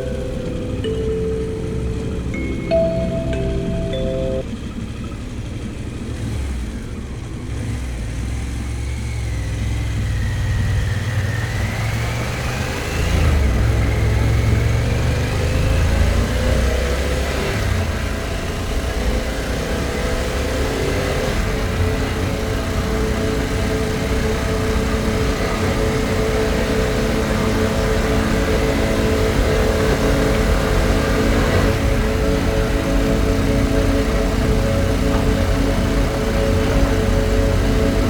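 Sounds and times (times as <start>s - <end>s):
motorcycle engine running: 17.8s - 38.0s.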